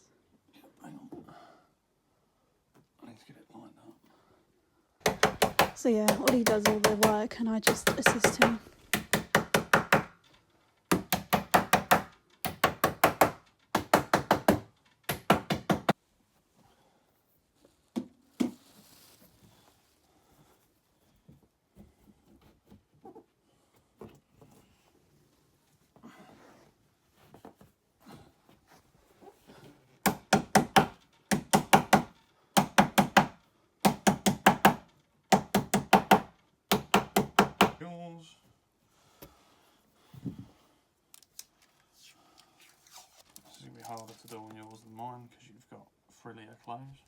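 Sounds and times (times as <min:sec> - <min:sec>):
hammer tapping nails into wood: 0:05.0 - 0:10.2, 0:10.9 - 0:16.0, 0:30.0 - 0:37.8.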